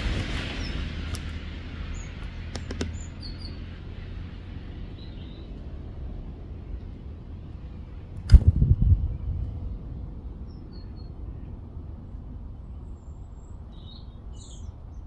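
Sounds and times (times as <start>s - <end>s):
small birds chirping: 0.0s - 11.6s, 12.5s - 15.0s
low rumble: 0.0s - 11.8s
low thumps: 8.2s - 9.5s.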